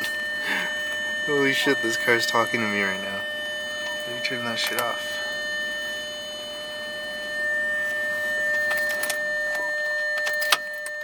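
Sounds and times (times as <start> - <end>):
car door warning tone: 0.0 - 11.0.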